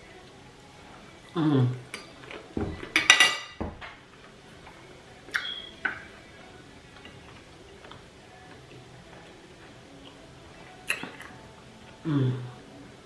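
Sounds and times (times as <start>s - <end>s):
cutlery clinking on dish: 1.9s - 4.0s, 5.3s - 6.2s.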